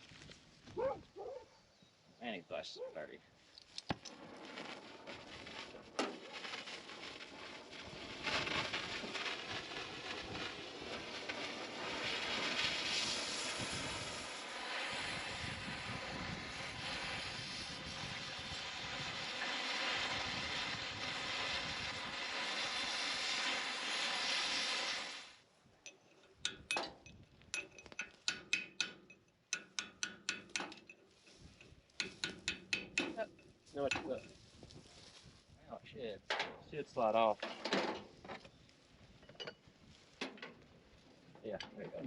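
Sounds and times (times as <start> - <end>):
cutting torch hissing roar: 4.2 - 25.4.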